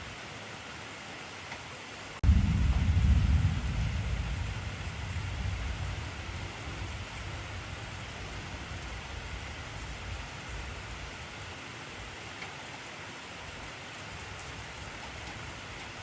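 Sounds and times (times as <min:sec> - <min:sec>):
heavy rain hissing: 0:02.1 - 0:16.0
low thunder rumble: 0:02.2 - 0:11.6.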